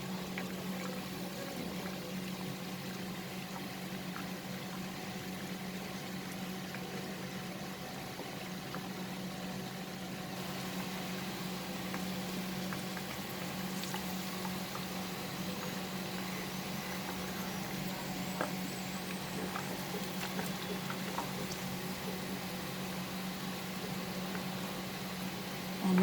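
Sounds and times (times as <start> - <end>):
hot oil sizzling: 10.4 - 25.8.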